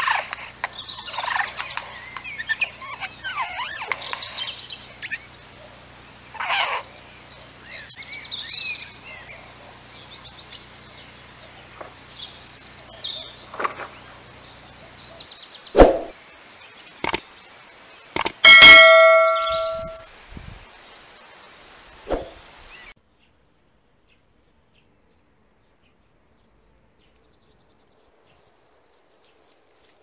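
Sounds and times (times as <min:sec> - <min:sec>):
harsh bird calls: 0:00.0 - 0:16.2, 0:18.1 - 0:20.9
birds chirping and trilling: 0:00.0 - 0:23.4
sharp knock: 0:15.8 - 0:16.1.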